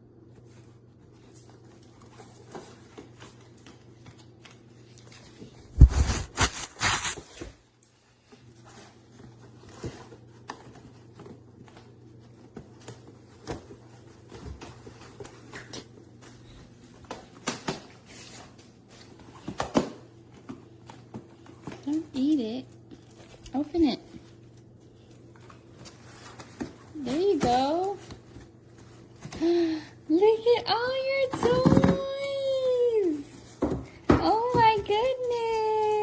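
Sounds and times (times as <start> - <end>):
packaging rustling and clicking: 5.8 - 7.5.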